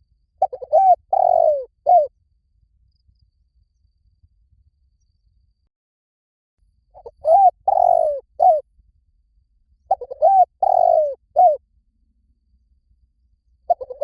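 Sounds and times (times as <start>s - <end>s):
dove cooing: 0.4s - 2.1s, 7.0s - 8.6s, 9.9s - 11.6s, 13.7s - 14.0s.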